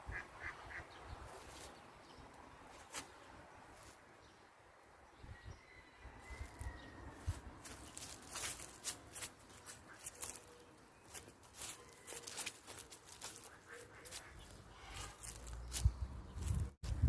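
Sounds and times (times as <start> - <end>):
birds calling sharply: 5.5 - 16.7.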